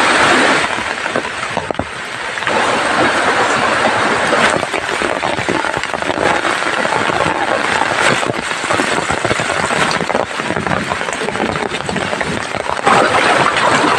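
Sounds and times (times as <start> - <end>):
heavy rain pouring: 0.0 - 13.9.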